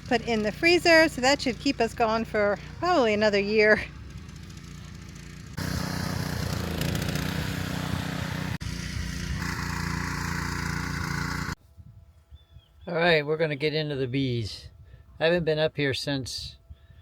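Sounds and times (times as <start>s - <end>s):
small engine running: 0.0s - 11.6s.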